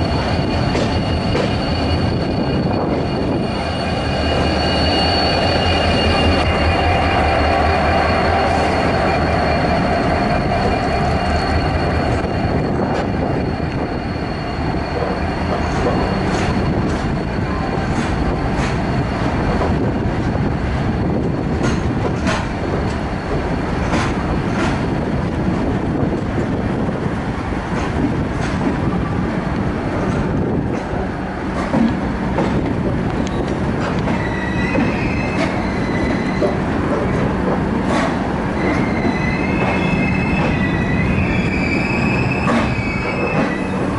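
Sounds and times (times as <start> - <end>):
high wheel squeal: 0.0 - 25.0, 33.2 - 43.9
train wheels rumbling on rail: 0.0 - 43.9
wheels clicking over rail joints: 29.9 - 35.6.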